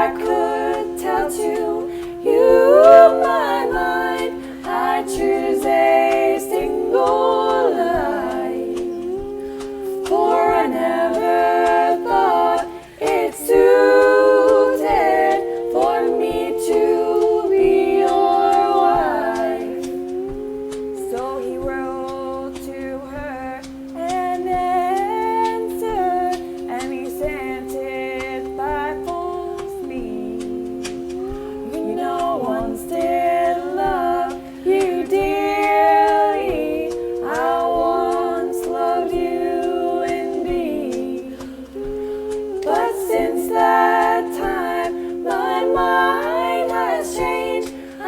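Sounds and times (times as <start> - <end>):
voices singing a cappella: 0.0 - 48.0.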